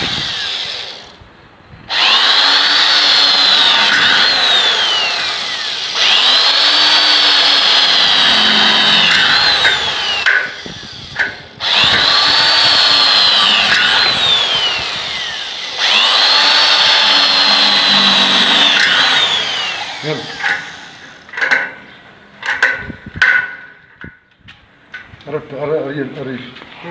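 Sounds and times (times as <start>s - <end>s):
electric power drill whine: 0.0s - 1.3s, 1.9s - 21.5s.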